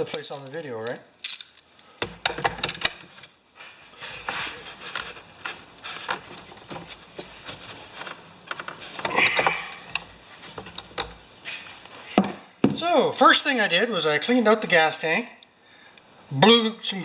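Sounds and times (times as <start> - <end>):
hand tools clicking and knocking: 0.0 - 3.1.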